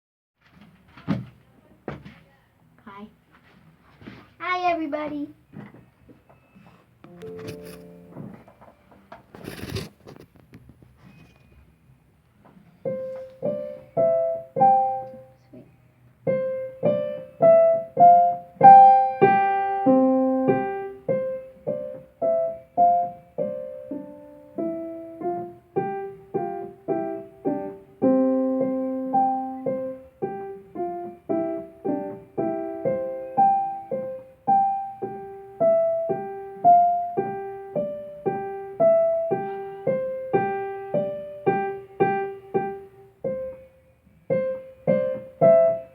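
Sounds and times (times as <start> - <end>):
slow solo piano tune: 7.1 - 8.4, 12.8 - 15.4, 16.2 - 45.9.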